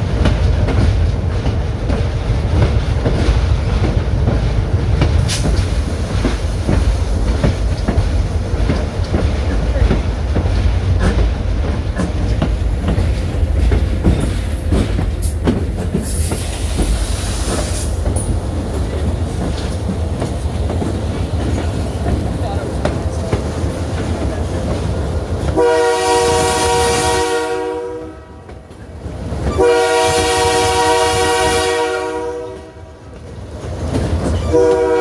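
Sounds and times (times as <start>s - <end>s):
wheels clicking over rail joints: 0.0s - 25.7s, 33.1s - 34.9s
train low rumble: 0.0s - 35.0s.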